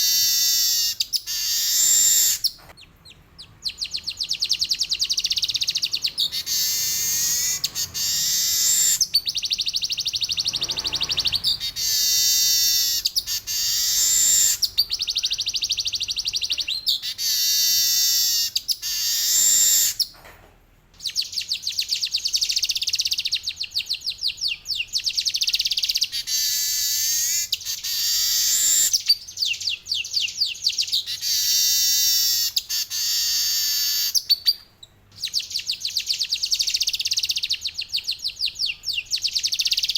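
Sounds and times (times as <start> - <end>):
weaver bird buzzy trills: 0.0 - 2.6, 3.7 - 20.1, 25.0 - 34.6.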